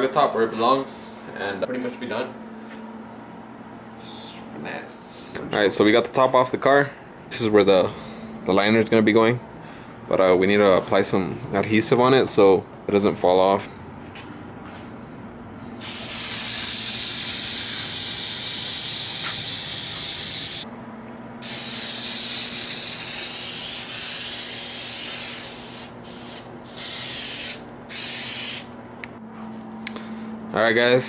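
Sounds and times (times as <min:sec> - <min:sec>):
aerosol spray hissing: 0:15.8 - 0:20.7, 0:21.4 - 0:28.7.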